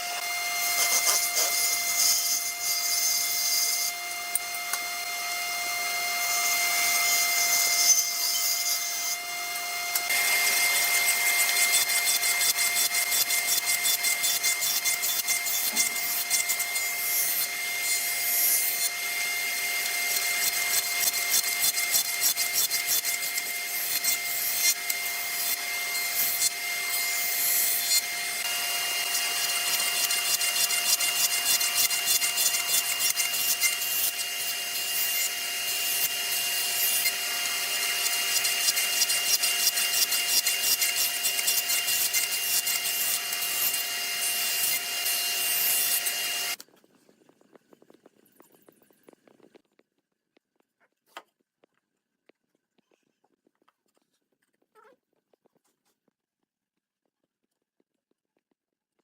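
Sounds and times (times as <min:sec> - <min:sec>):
tool rasping wood: 0:00.0 - 0:04.8, 0:05.8 - 0:46.7.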